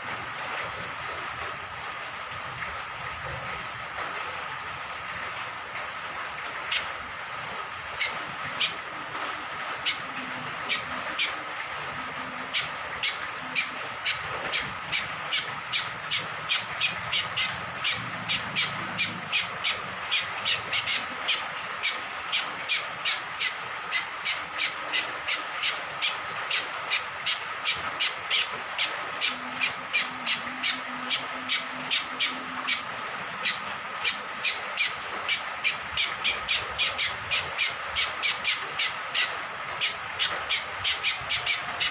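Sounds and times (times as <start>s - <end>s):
hiss of falling rain: 0.0s - 41.9s
bird giving sharp calls: 9.8s - 41.9s.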